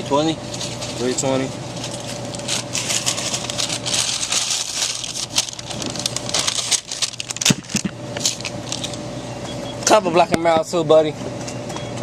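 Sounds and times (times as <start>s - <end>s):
crinkling and rustling: 1.7s - 9.0s.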